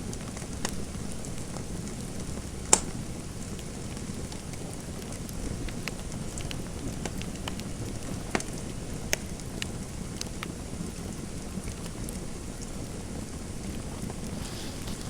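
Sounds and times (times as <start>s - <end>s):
fireplace fire crackling: 11.4s - 15.0s.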